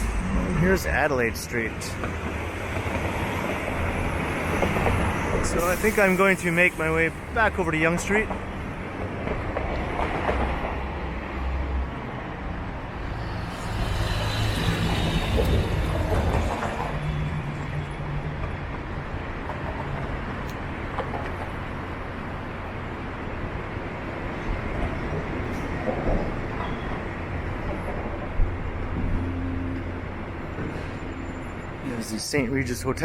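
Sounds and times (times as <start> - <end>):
vehicle passing: 0.0 - 2.0, 12.8 - 16.9
hum of street traffic: 0.0 - 33.0.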